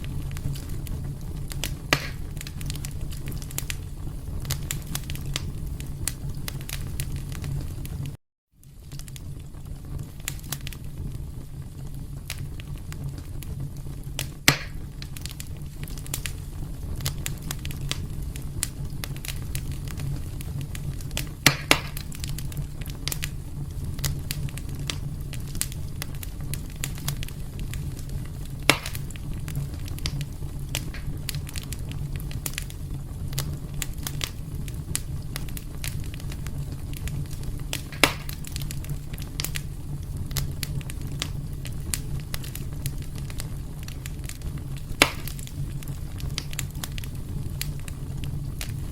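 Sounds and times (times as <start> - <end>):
fire crackling: 0.0 - 48.9
fire flames rumbling: 0.0 - 48.9
sharp wood pops: 1.9 - 2.3, 14.5 - 14.8, 21.4 - 22.1, 28.7 - 29.1, 37.7 - 38.4, 45.0 - 45.4.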